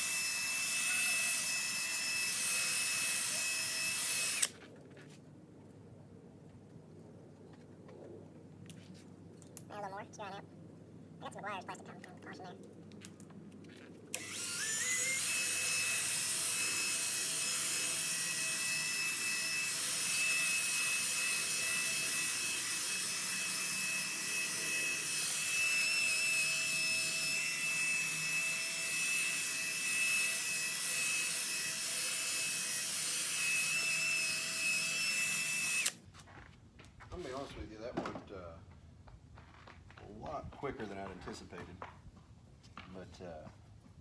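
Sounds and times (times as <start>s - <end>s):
electric drill whining: 0.0s - 4.6s, 14.1s - 36.0s.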